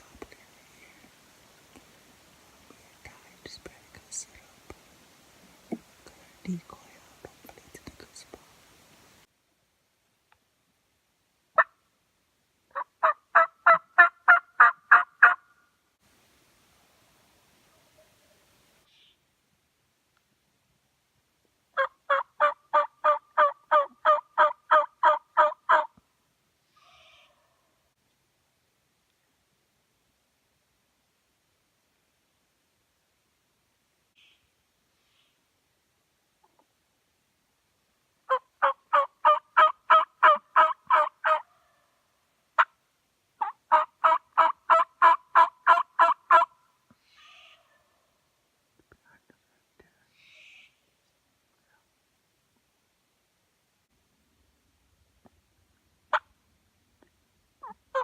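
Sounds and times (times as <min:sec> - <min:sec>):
turkey call yelps: 0:12.8 - 0:15.4, 0:21.8 - 0:25.9, 0:38.3 - 0:41.4, 0:43.4 - 0:46.5, 0:47.1 - 0:47.9, 0:57.6 - 0:58.0.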